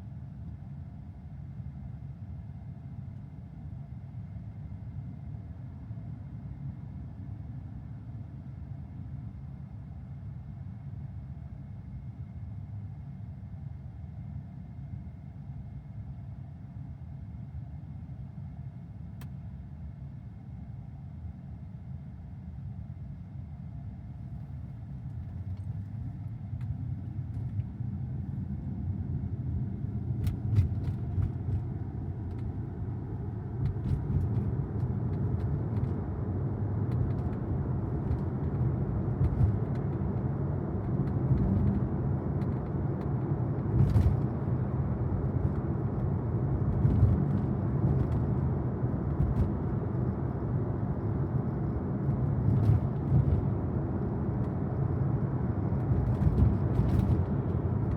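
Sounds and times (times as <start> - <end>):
road and tyre rumble: 24.1 - 57.9.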